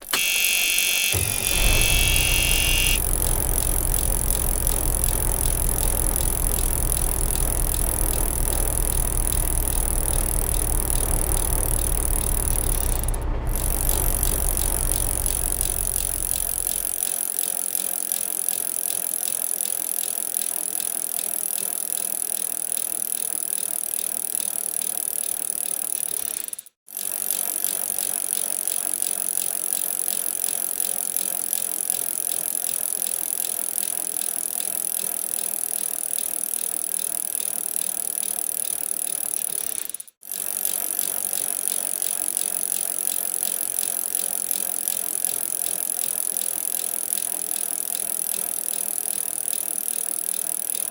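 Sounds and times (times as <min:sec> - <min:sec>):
bicycle running gear and tyres: 0:00.0 - 0:17.0.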